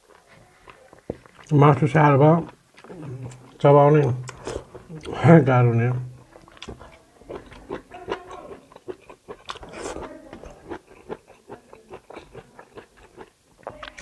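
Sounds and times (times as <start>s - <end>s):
close chewing with wet smacks: 0.0s - 5.2s, 6.0s - 14.0s
teeth and lips clicking: 2.4s - 5.2s, 6.2s - 14.0s.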